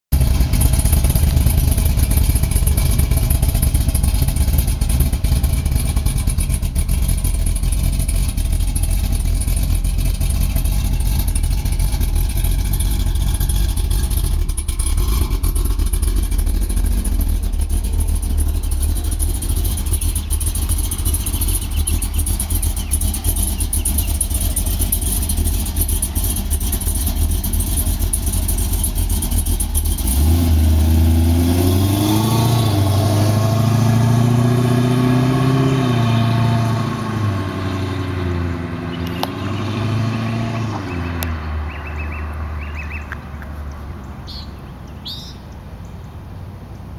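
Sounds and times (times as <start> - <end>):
car engine idling with deep exhaust: 0.1 - 31.0.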